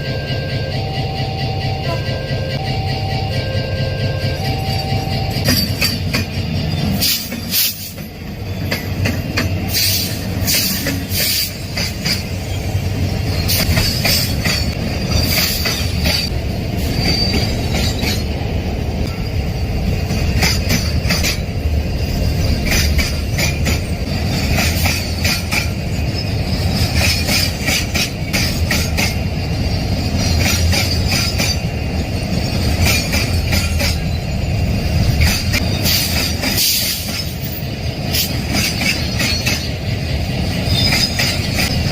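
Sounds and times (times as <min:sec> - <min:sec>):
rumble of rolling train wagons: 0:00.0 - 0:41.9
wheels clacking over rail joints: 0:04.5 - 0:41.9
high wheel squeal: 0:09.7 - 0:18.2, 0:38.7 - 0:41.8.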